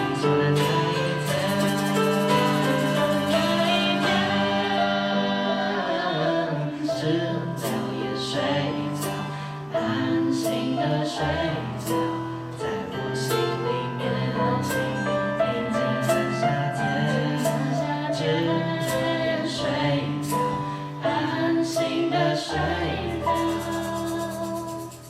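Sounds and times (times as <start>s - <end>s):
drums: 0.0s - 4.8s
bass: 0.0s - 25.0s
keyboard chords: 0.0s - 25.0s
person singing: 0.0s - 25.0s.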